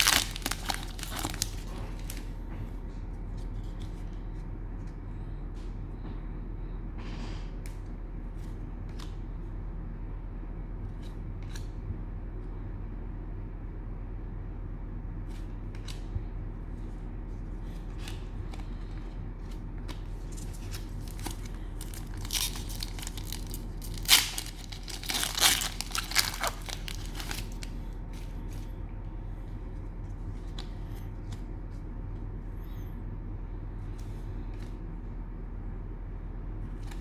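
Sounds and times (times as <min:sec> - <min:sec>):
cellophane wrapper crinkling: 0:00.0 - 0:02.3, 0:17.7 - 0:28.7
steady low hum: 0:00.0 - 0:37.0
light clicks of card handling: 0:15.3 - 0:32.9, 0:33.8 - 0:34.9, 0:36.8 - 0:37.0.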